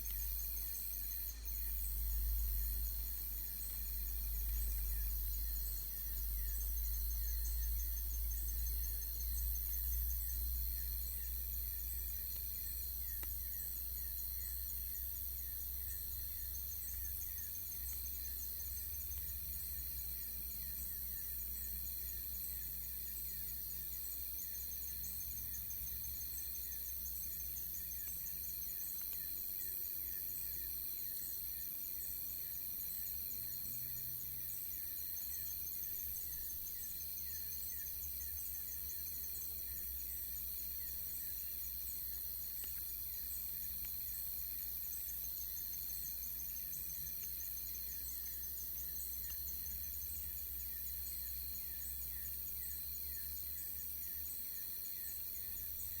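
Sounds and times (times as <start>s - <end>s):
continuous low rumble: 0.0s - 24.5s
crickets chirping: 0.0s - 56.0s.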